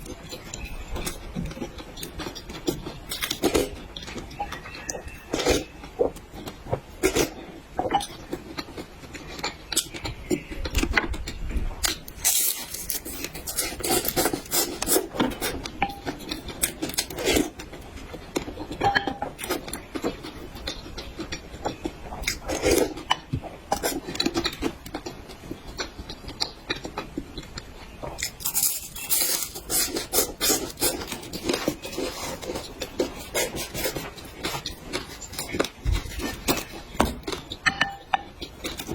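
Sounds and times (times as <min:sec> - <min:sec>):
mouth clicks and scrapes: 0:00.0 - 0:38.9
person chewing: 0:00.0 - 0:38.9.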